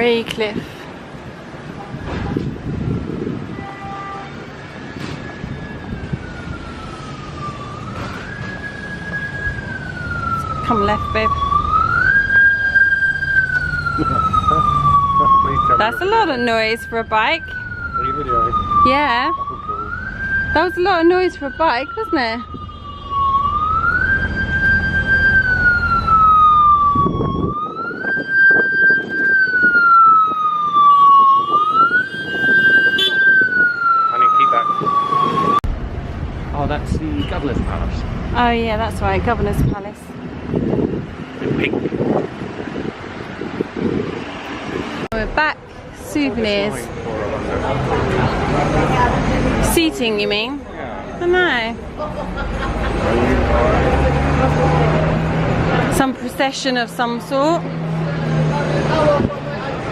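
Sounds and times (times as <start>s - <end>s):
low traffic rumble: 0.0s - 59.9s
siren wailing: 4.4s - 35.7s.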